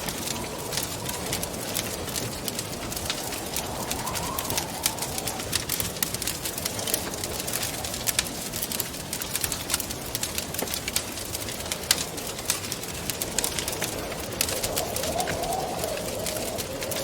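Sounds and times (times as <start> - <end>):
wind rushing: 0.0 - 9.1, 12.9 - 17.0
wood fire crackling: 0.0 - 17.0.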